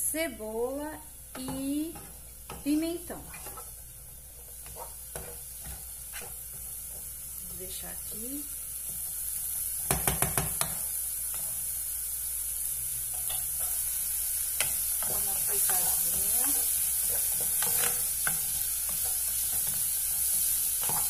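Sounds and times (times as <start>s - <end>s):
vegetables sizzling in fat: 0.0s - 21.0s
wooden spoon knocking pot: 9.9s - 10.7s.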